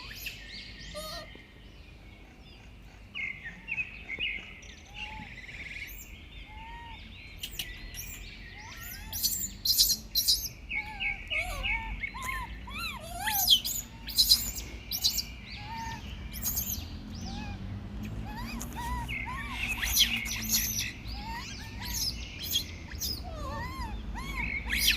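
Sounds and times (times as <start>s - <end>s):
birds chirping: 0.0s - 24.9s.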